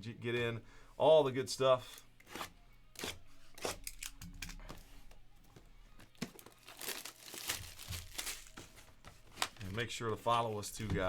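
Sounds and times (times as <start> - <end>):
packaging crinkling and tearing: 6.1 - 9.8.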